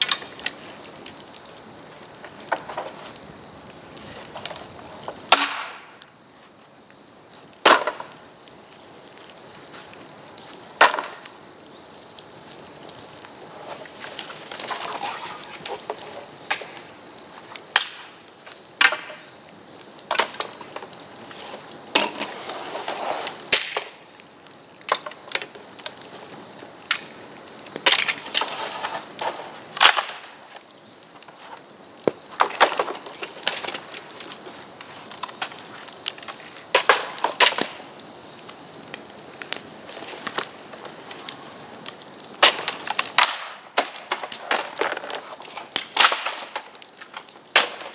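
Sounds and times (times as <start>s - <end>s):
rustling: 13.4s - 17.6s
bamboo cracking: 39.5s - 47.9s.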